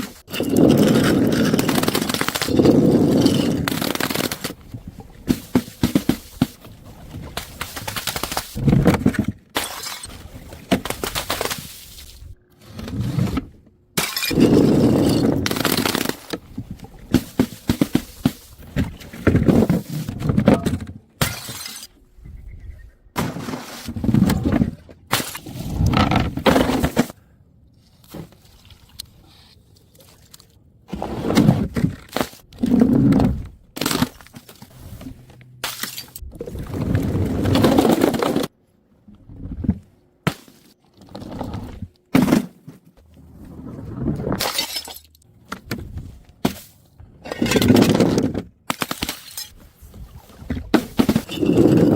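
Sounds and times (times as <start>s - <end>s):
glass bottles shattering: 9.6s - 10.1s, 14.0s - 16.2s, 20.6s - 22.0s, 44.4s - 45.2s.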